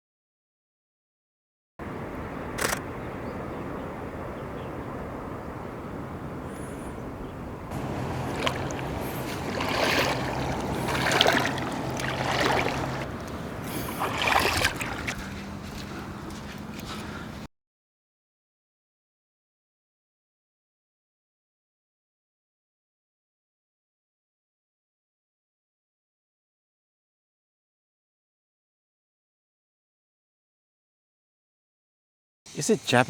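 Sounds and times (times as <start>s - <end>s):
waves washing onto shore: 1.8s - 17.4s
faint low hum: 1.9s - 17.3s
sharp click: 2.6s - 2.9s
hiss of surf: 7.7s - 15.6s, 32.5s - 33.0s.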